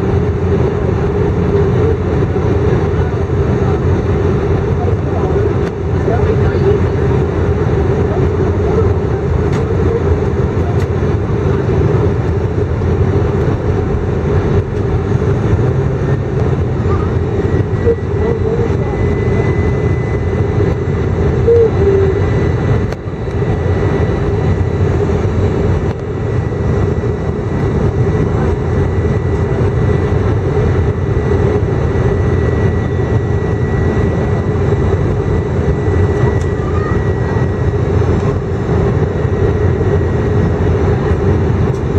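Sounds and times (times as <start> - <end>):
airplane cabin drone: 0.0 - 41.9
faint high tone: 21.4 - 22.3.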